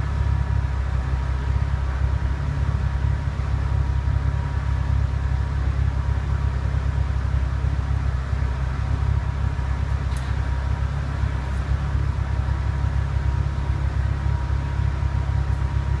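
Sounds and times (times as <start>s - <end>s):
car exhaust low rumble: 0.0s - 16.0s.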